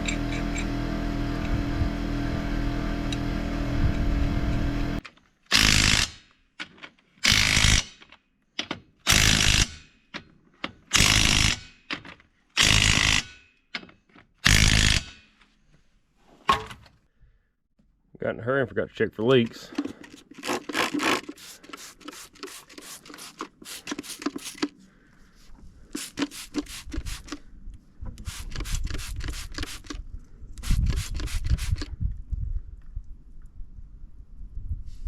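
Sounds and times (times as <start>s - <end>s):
motor running: 0.0s - 5.0s
power tool bursts: 4.7s - 6.2s, 9.1s - 9.7s, 12.6s - 13.3s, 14.4s - 15.1s, 20.3s - 24.7s, 28.2s - 30.0s.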